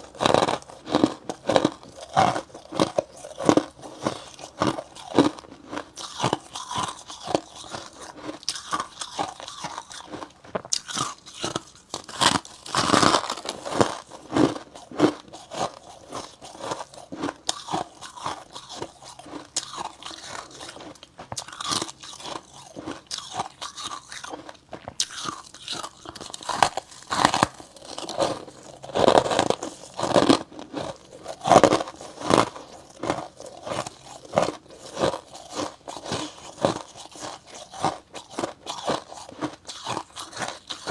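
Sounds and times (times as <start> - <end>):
crunching bites of frost: 25.0 - 40.9.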